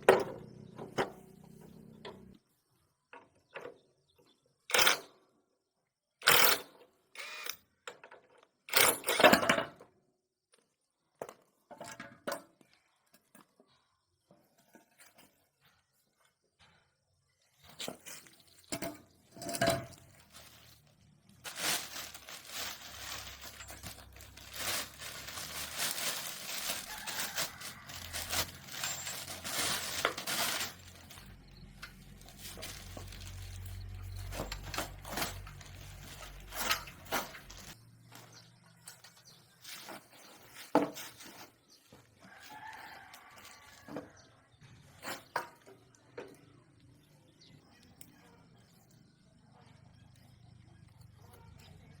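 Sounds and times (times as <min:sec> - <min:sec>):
metal tools clinking: 0:18.8 - 0:20.8, 0:21.5 - 0:37.8
metal scraping: 0:21.5 - 0:37.8.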